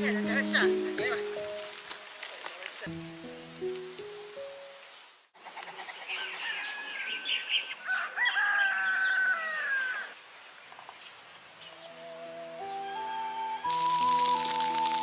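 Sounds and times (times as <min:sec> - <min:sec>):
rooster crowing: 0:05.7 - 0:10.2.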